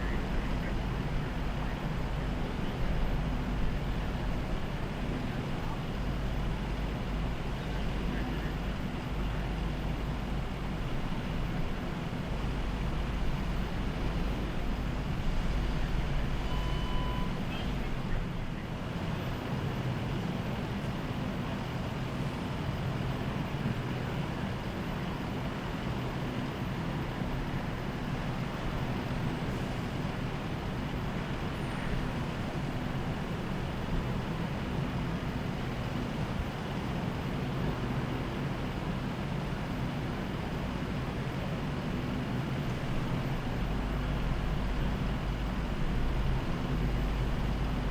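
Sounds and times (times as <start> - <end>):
short electronic beep: 16.4 - 17.7
road traffic rumble: 17.2 - 47.9.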